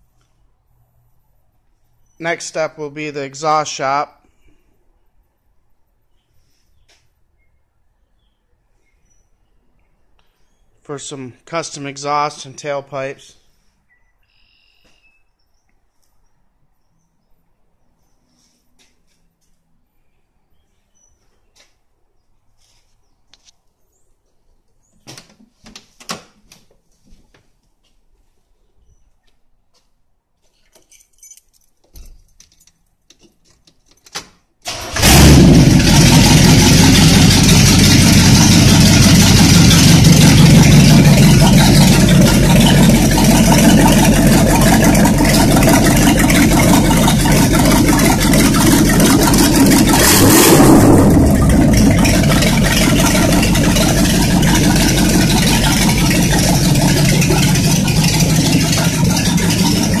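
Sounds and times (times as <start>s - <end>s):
car engine starting and running: 34.7s - 60.0s
engine revving: 34.7s - 60.0s.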